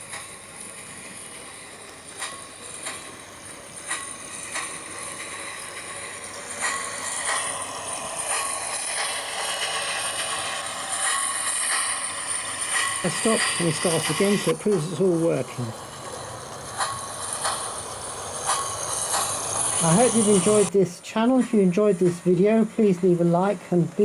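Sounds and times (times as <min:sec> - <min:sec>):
model train running on track: 0:00.0 - 0:24.0.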